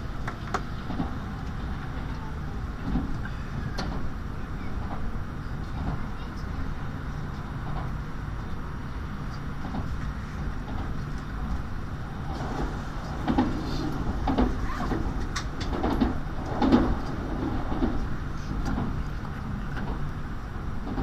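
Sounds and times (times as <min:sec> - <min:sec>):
train interior rumble: 0:00.0 - 0:21.0
irregular knocks and clunks: 0:13.2 - 0:18.0.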